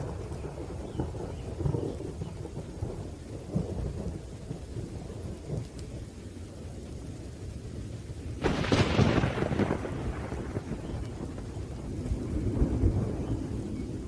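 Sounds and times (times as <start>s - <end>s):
low rolling thunder: 0.0s - 14.0s
steady rain: 0.0s - 14.0s
loud thunderclap: 8.4s - 14.0s.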